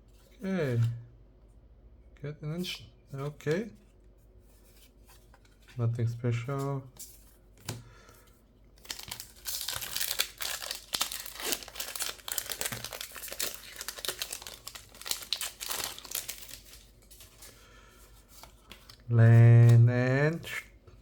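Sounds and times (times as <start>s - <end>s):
foil wrapper tearing and crinkling: 8.8s - 17.5s.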